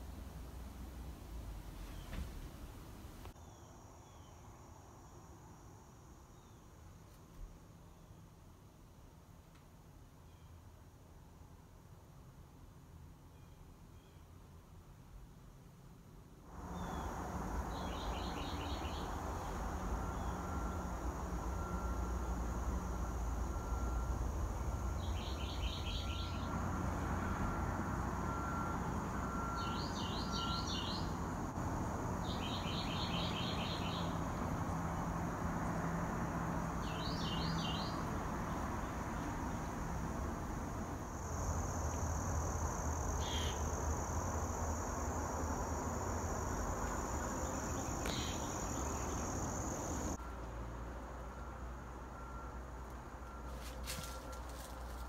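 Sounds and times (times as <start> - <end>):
bird chirping: 16.7 - 20.7, 25.0 - 26.6, 29.3 - 31.2, 32.2 - 34.3, 36.8 - 39.7, 43.2 - 43.7, 47.2 - 50.2
high-pitched insect drone: 41.0 - 50.2.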